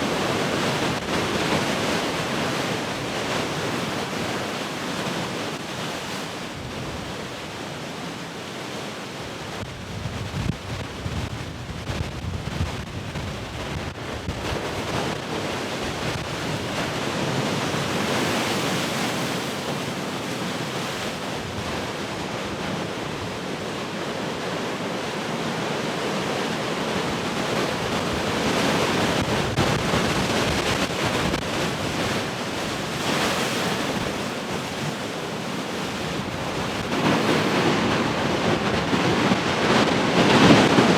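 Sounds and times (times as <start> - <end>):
ocean surf breaking: 0.0 - 40.9
wind buffeting microphone: 9.4 - 18.1, 26.9 - 40.9.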